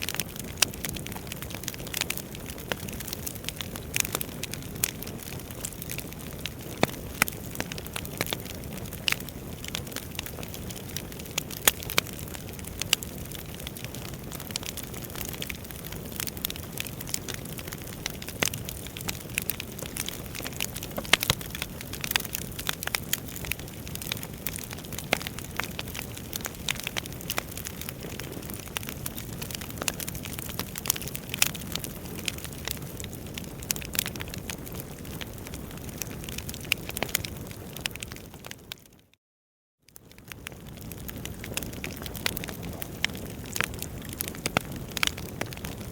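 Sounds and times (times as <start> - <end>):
low rumble of flames: 0.0 - 38.8, 40.0 - 45.9
wood fire crackling and popping: 0.0 - 39.0, 39.9 - 45.9.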